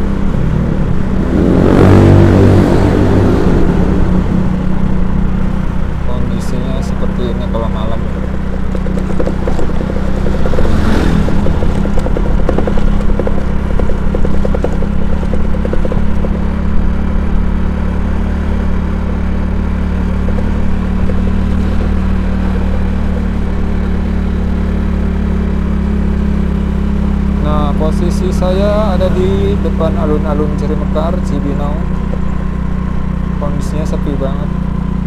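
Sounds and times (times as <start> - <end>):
motorcycle engine hum: 0.0 - 35.0
wind and road noise: 0.0 - 35.0
rattling: 4.6 - 24.6.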